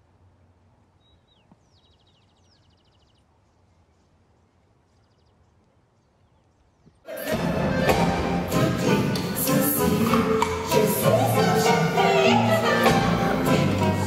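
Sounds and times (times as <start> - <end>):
loud music with singing: 7.1 - 14.0.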